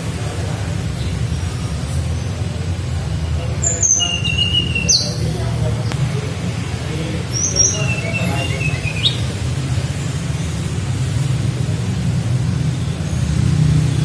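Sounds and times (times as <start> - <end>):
bird whistling: 3.6 - 5.3, 7.3 - 9.4.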